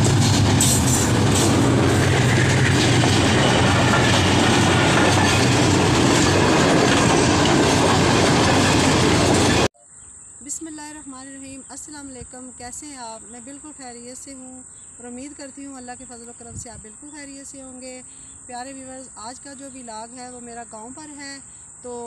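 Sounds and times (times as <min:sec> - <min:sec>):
deep locomotive engine hum: 0:00.0 - 0:09.7
train wheels rumbling on track: 0:00.0 - 0:09.7.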